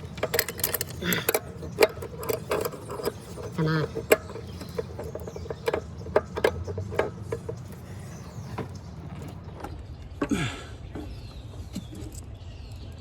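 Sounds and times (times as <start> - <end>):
wrench clicking and knocking on metal: 0.0 - 9.6.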